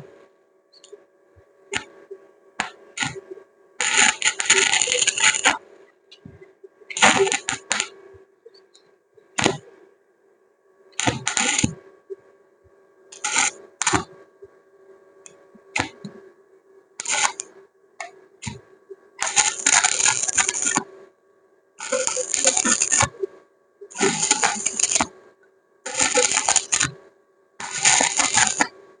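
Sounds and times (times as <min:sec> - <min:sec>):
welding transformer hum: 0:00.0 - 0:09.7, 0:11.0 - 0:12.2, 0:13.1 - 0:14.6, 0:15.2 - 0:16.3, 0:17.0 - 0:21.2, 0:21.8 - 0:28.8
crackling welding arc: 0:02.6 - 0:03.2, 0:03.8 - 0:05.6, 0:06.9 - 0:07.9, 0:11.0 - 0:11.8, 0:13.2 - 0:14.1, 0:15.8 - 0:16.0, 0:17.0 - 0:18.6, 0:19.2 - 0:20.9, 0:21.8 - 0:23.3, 0:23.9 - 0:25.1, 0:25.9 - 0:27.0, 0:27.6 - 0:28.7.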